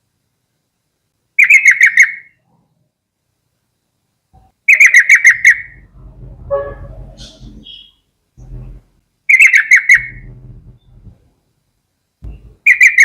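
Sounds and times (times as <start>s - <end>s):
bulbul chattering calls: 1.4s - 2.4s, 4.7s - 5.8s, 7.2s - 8.0s, 9.3s - 10.2s, 12.3s - 13.0s
faint low rumble: 5.5s - 9.2s, 10.0s - 12.7s.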